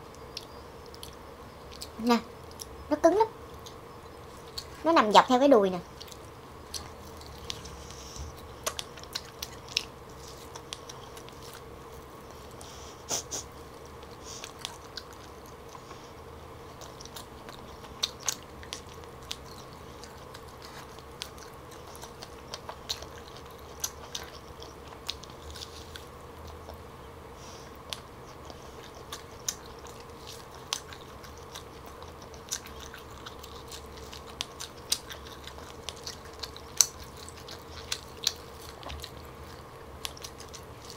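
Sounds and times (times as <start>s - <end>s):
faint steady hum: 0.0s - 40.9s
chewing and biting meat: 5.8s - 12.6s, 13.7s - 27.0s, 27.6s - 40.9s.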